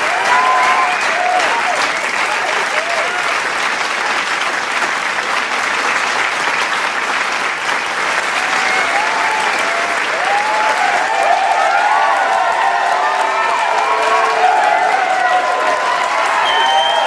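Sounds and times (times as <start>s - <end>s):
crowd applauding: 0.0s - 17.0s
crowd cheering: 0.0s - 17.0s.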